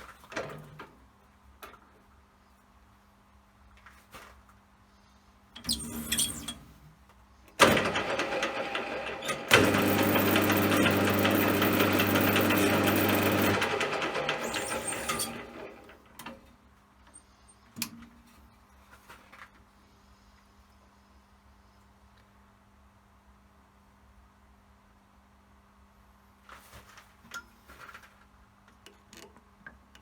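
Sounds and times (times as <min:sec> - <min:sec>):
metal lathe running: 0:07.6 - 0:15.8.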